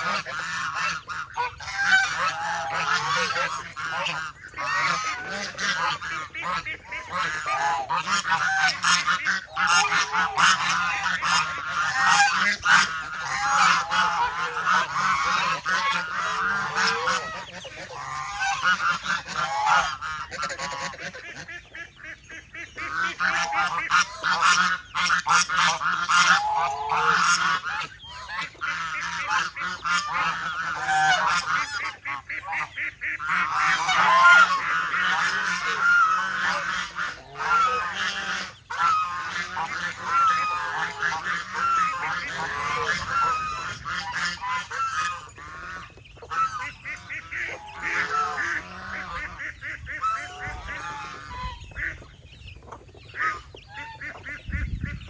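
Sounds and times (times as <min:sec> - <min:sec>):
geese honking: 0:00.0 - 0:55.0.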